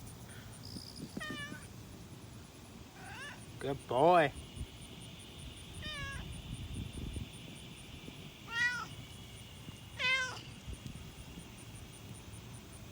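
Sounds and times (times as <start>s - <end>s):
cat meowing: 3.0s - 3.4s, 5.8s - 6.3s, 8.5s - 8.9s, 10.0s - 10.4s.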